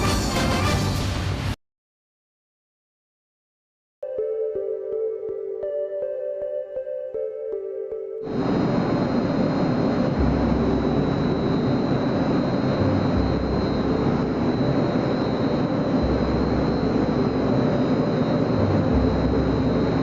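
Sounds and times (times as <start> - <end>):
thin high whine: 8.2 - 20.0
vibrating screen machine running: 8.3 - 20.0.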